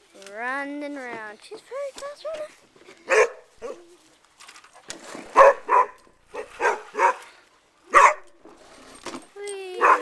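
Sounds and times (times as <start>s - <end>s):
dog barking: 3.1s - 3.8s, 5.4s - 7.3s, 7.9s - 8.3s, 9.8s - 10.0s.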